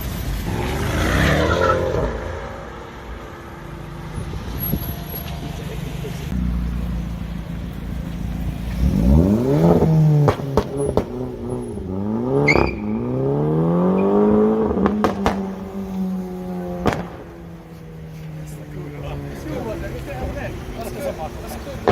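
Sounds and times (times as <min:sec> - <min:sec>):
car engine accelerating hard: 0:00.4 - 0:21.9
exhaust cracks: 0:06.3 - 0:13.1, 0:13.8 - 0:20.6.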